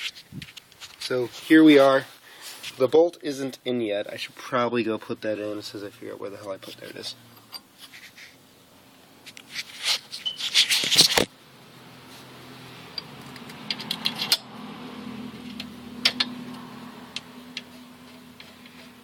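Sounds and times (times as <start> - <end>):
metal tools clinking: 6.7 - 7.8, 13.0 - 14.5
low steady hum: 11.3 - 19.0.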